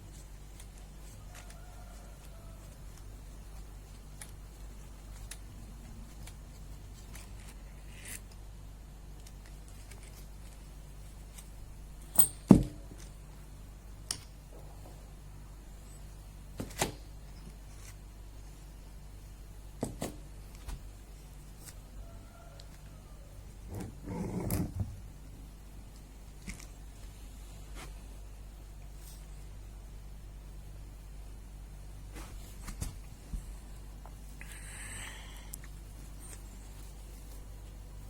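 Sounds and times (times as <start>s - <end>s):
metal tools clicking and knocking: 12.1s - 12.6s.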